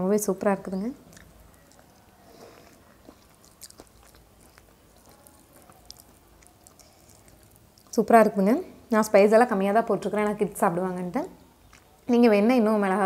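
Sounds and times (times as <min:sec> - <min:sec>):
faint chewing: 0:00.7 - 0:08.4, 0:11.6 - 0:12.2.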